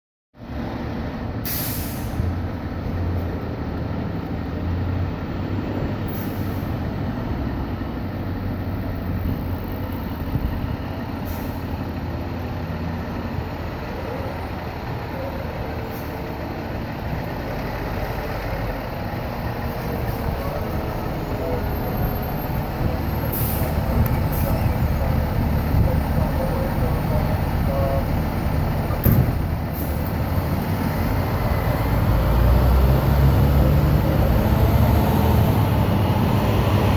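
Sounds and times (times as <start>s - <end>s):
diesel engine running: 0.6s - 36.9s
air brake hisses: 1.4s - 2.2s.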